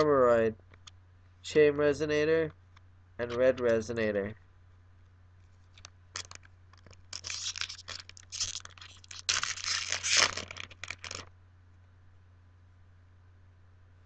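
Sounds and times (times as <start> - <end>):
foil wrapper tearing and crinkling: 5.8 - 11.3.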